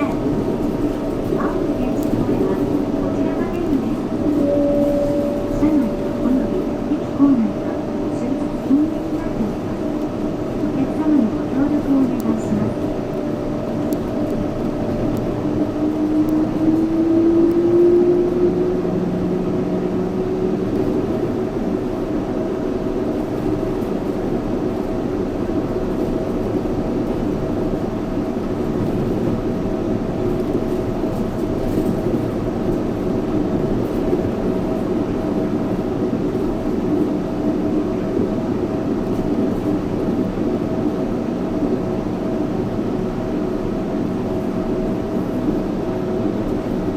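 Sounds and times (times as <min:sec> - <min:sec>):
train running noise: 0:00.0 - 0:46.9
high steady tone: 0:04.2 - 0:08.8.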